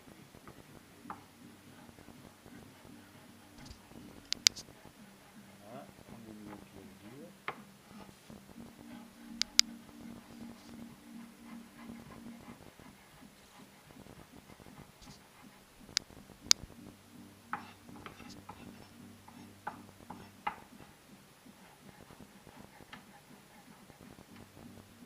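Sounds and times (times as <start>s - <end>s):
faint steady hum: 0.0s - 25.0s
sharp clicks: 3.6s - 4.6s, 9.3s - 9.8s.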